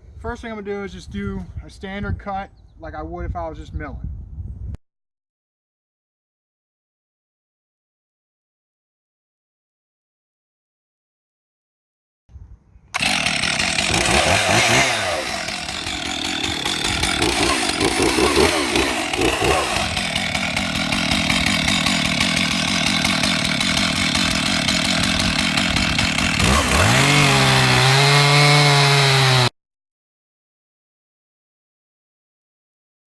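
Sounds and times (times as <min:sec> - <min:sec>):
chainsaw cutting log: 0:13.0 - 0:29.5.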